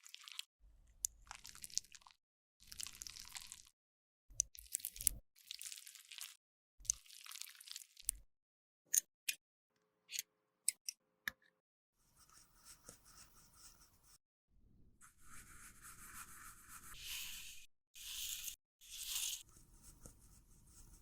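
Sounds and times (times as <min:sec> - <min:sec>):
tool scraping makeup: 0:15.1 - 0:20.2.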